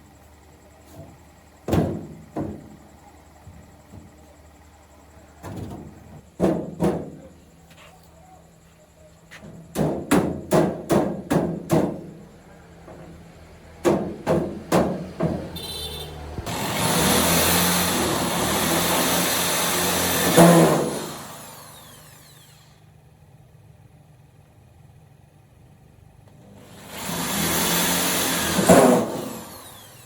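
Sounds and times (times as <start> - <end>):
power tool whining and running: 15.6 - 23.0, 26.4 - 30.0.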